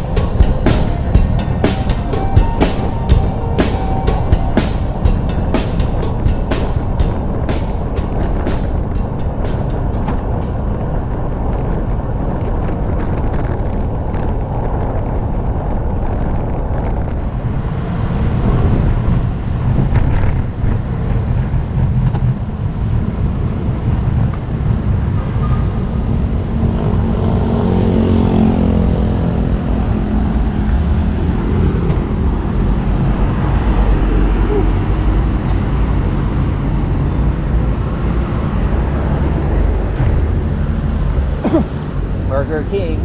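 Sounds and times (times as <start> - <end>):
road traffic noise: 0.0 - 43.0
wind rushing over microphone: 0.0 - 43.0.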